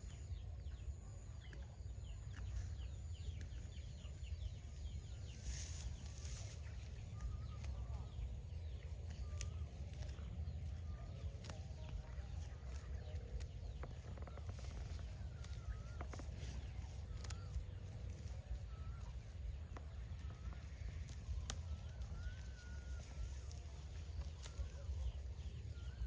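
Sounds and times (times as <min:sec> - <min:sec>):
steady low rumble: 0:00.0 - 0:26.0
warbling bird calls: 0:12.3 - 0:26.0.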